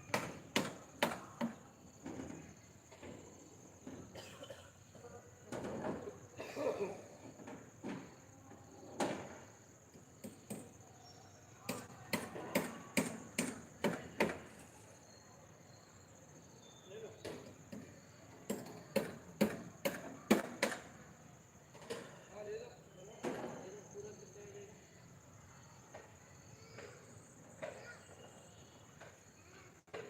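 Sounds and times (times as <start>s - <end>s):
hammer knocking on formwork: 0.1s - 1.6s, 11.7s - 14.4s, 18.5s - 20.8s.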